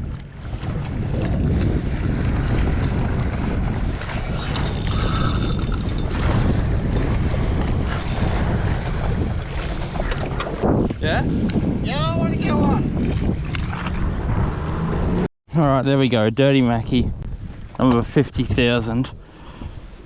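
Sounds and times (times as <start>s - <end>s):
wind buffeting microphone: 0.0s - 20.0s
ocean waves: 0.3s - 10.6s.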